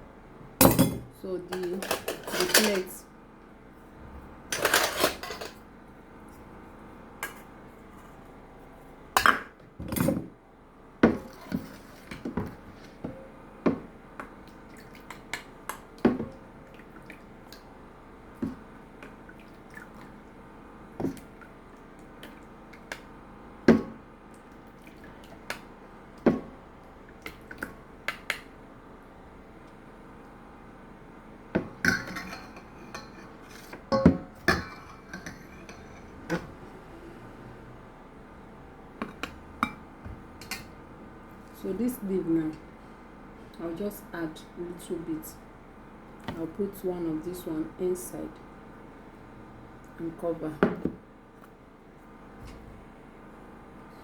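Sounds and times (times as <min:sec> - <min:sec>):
plates and utensils clinking: 0:31.9 - 0:36.4.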